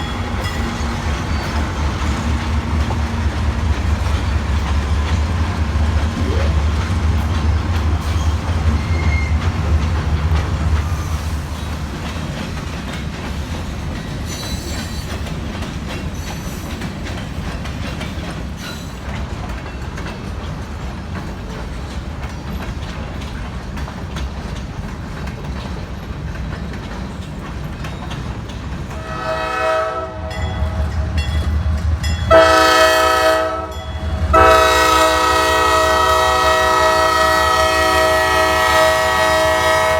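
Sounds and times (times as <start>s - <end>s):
diesel locomotive rumble: 0.0s - 14.3s, 26.9s - 39.9s
train cars rolling and clattering: 0.0s - 39.9s
locomotive air horn: 29.0s - 31.2s, 32.3s - 39.9s.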